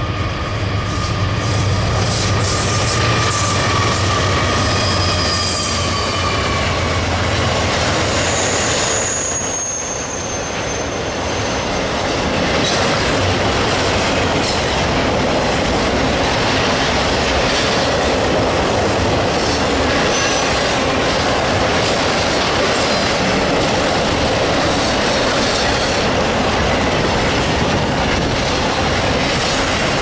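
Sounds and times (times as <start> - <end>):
train wheels on rail: 0.0 - 30.0
thin high wheel squeal: 0.2 - 11.9.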